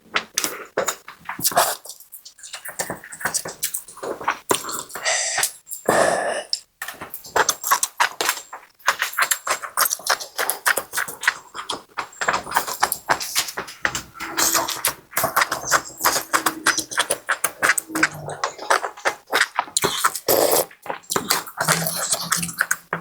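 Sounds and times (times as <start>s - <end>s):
wet chewing: 0.2s - 5.9s, 6.5s - 23.0s
slurping soup: 9.0s - 23.0s.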